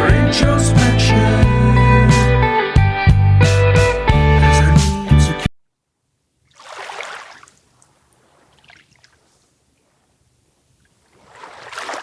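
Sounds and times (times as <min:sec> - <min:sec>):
faint water trickling: 0:06.0 - 0:12.0
wet water swishes: 0:06.4 - 0:12.0.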